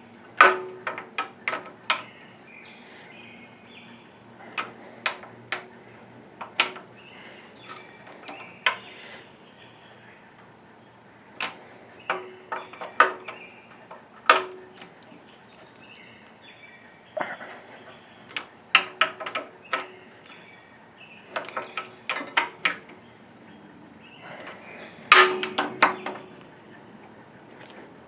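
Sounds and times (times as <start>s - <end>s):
hand tools clinking on metal: 6.4s - 6.9s, 21.3s - 23.0s, 24.4s - 26.4s.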